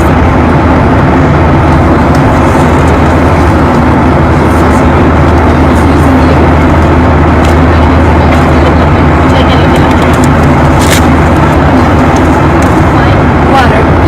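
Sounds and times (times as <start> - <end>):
airliner cabin noise: 0.0 - 14.0.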